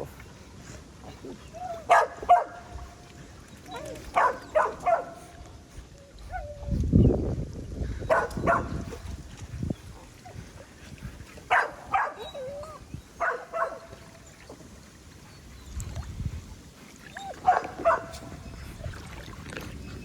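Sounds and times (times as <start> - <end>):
pool water sloshing: 0.0 - 6.6, 8.1 - 20.0
dog barking: 1.9 - 2.6, 4.2 - 5.3, 8.1 - 8.9, 11.5 - 12.3, 13.2 - 13.9, 17.4 - 18.2
dog whining: 12.0 - 13.0.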